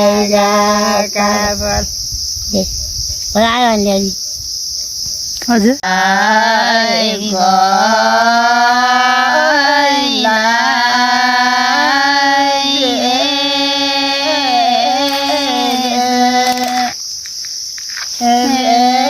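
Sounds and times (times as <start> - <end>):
person singing long notes: 0.0 - 1.9, 5.8 - 17.0, 18.2 - 19.0
crickets chirping: 0.0 - 19.0.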